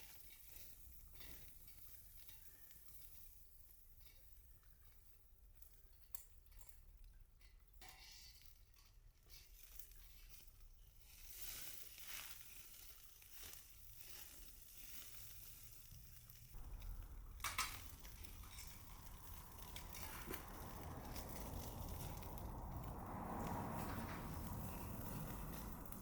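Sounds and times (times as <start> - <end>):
wood fire crackling: 0.0 - 26.0
sharp crack of fire: 9.6 - 26.0.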